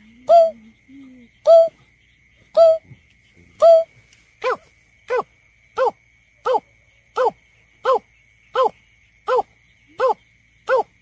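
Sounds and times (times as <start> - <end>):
bird hooting: 0.0 - 1.8, 2.5 - 2.9, 3.6 - 5.2.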